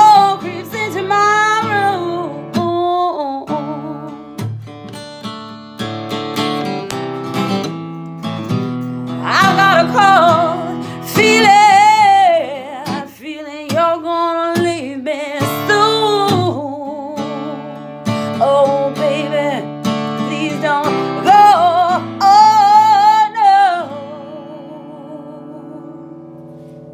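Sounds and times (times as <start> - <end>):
woman singing wordless notes: 0.0 - 4.3, 9.2 - 17.8, 18.4 - 26.2
strummed acoustic guitar: 0.0 - 26.9.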